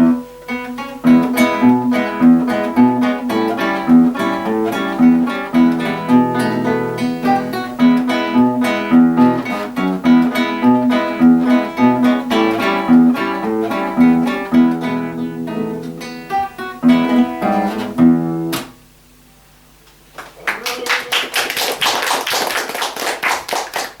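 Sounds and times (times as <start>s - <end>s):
two acoustic guitars playing: 0.0s - 18.8s
applause: 20.1s - 24.0s.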